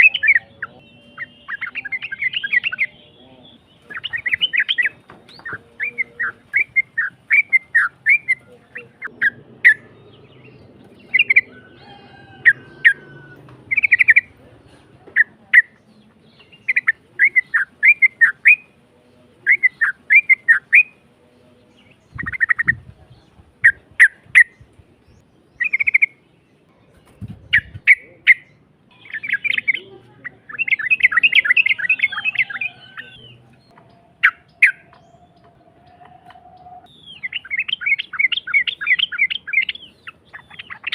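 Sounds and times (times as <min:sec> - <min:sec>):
bird singing bubbly song: 0:00.0 - 0:11.6, 0:13.7 - 0:14.3, 0:19.4 - 0:22.9, 0:23.6 - 0:35.6, 0:36.8 - 0:40.9.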